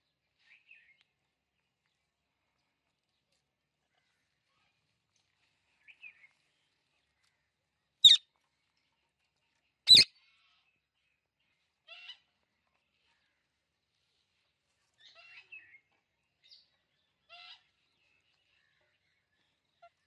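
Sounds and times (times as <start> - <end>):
parrot sharp calls: 9.9 - 10.1
parrot soft chirps: 9.9 - 10.1.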